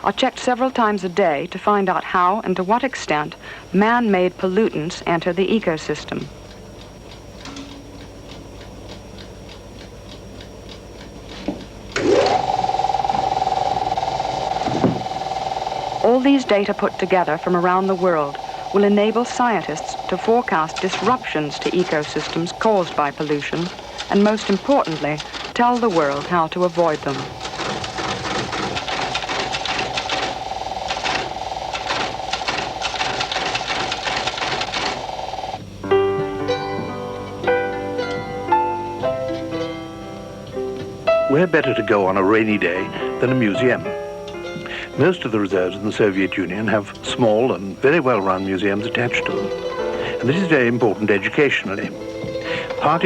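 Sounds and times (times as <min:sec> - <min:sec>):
laboratory instrument ticking: 0:01.9 - 0:35.6, 0:41.2 - 0:53.0
motor whining and whirring: 0:05.0 - 0:35.8.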